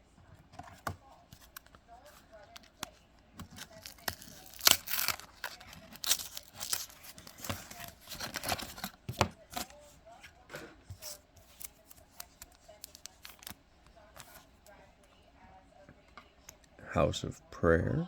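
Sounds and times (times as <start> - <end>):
cards clicking and tapping: 0.6 - 9.8, 10.5 - 13.6
wrapper tearing and crinkling: 3.4 - 8.9, 11.0 - 13.6.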